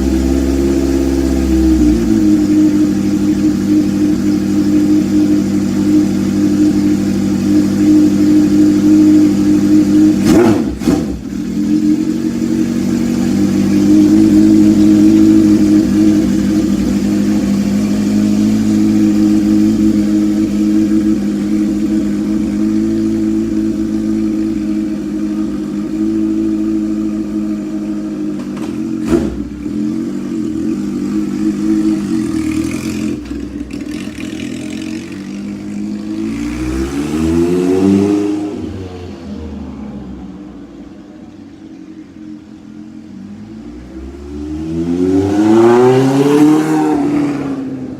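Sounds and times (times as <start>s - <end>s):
motorcycle engine idling: 0.0s - 36.7s.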